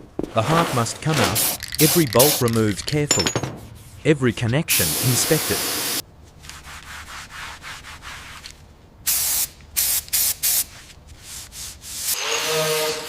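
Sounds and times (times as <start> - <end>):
loud hissing bursts: 1.3 - 3.0, 4.7 - 6.0.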